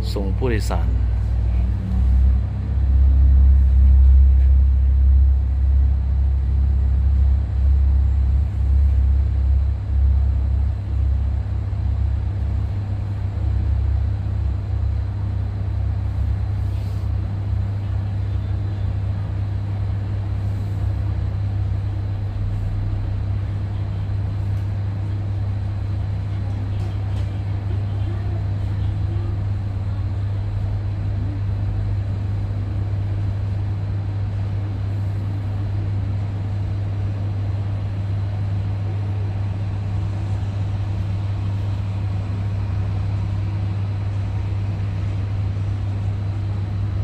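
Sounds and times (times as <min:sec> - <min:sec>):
jet engines rumbling: 0:00.0 - 0:28.6.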